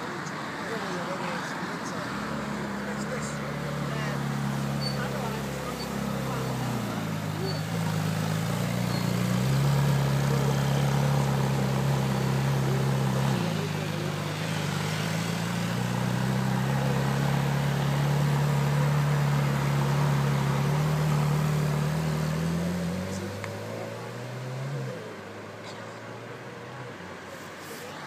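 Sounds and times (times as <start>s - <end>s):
car engine running at low revs: 1.8s - 28.0s.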